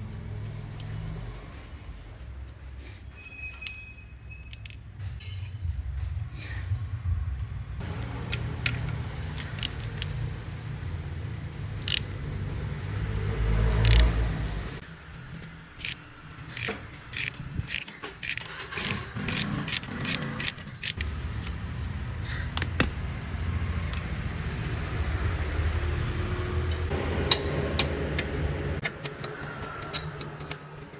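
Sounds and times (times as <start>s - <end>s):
metal tools clinking and scraping: 7.9s - 10.3s, 14.9s - 22.7s.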